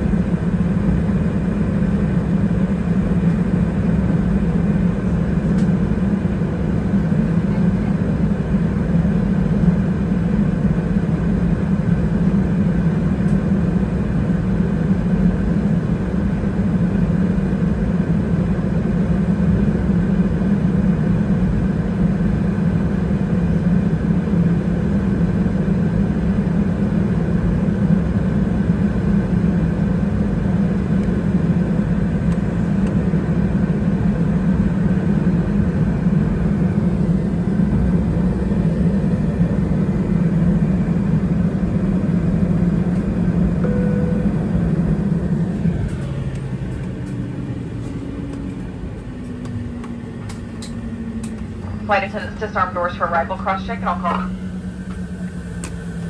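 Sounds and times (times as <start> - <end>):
air-conditioning hum: 0.0 - 56.0
jet engines idling: 0.0 - 56.0.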